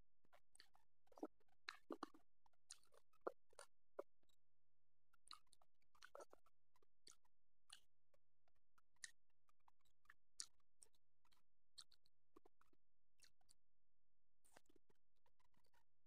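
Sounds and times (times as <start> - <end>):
person chewing wetly: 1.1 - 3.7, 5.3 - 6.4.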